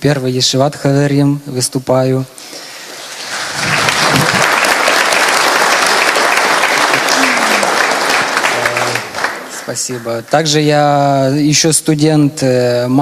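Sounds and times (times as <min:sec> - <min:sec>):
audience applauding: 0:02.8 - 0:10.3.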